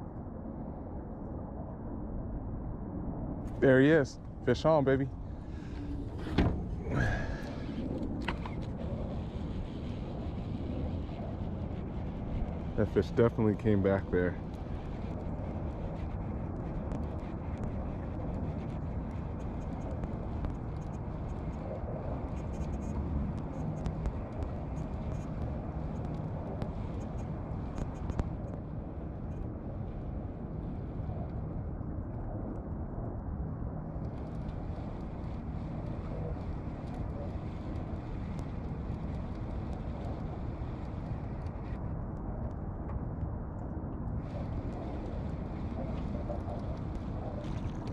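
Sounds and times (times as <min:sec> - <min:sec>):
wind on microphone: 0:00.0 - 0:47.9
boat motor low rumble: 0:03.4 - 0:30.5, 0:44.1 - 0:47.9.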